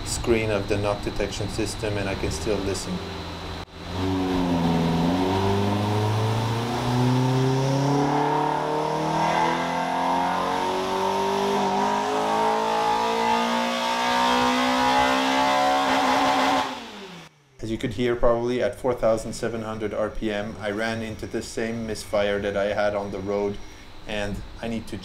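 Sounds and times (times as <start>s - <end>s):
car engine revving under load: 0.0s - 17.3s.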